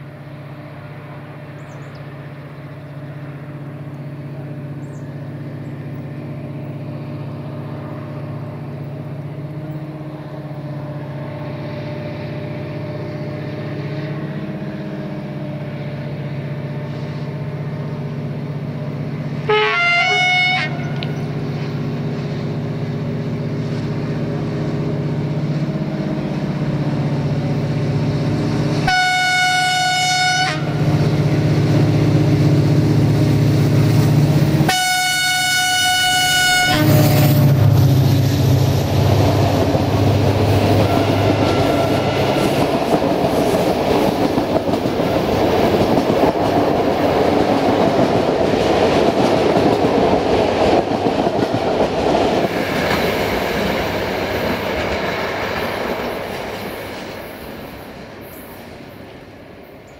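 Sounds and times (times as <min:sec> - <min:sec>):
diesel locomotive engine rumble: 0:00.0 - 0:59.9
locomotive horn blasts: 0:19.4 - 0:21.2, 0:28.8 - 0:30.9, 0:34.6 - 0:37.4, 0:40.7 - 0:42.6
train wheels clattering on rails: 0:37.1 - 0:59.9.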